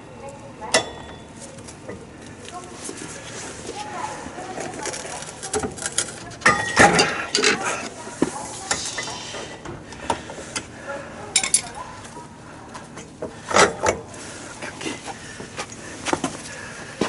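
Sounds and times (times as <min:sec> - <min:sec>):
metal tools clinking: 0:11.4 - 0:11.8.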